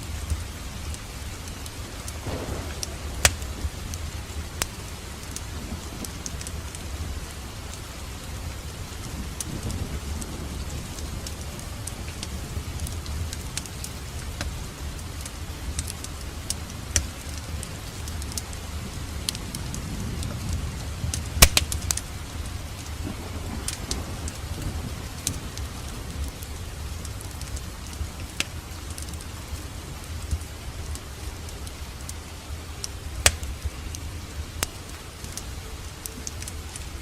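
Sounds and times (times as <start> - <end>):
fireplace fire crackling: 0.0 - 37.0
low rumble of flames: 0.0 - 37.0
loud fire pops: 0.2 - 7.8, 19.2 - 36.8.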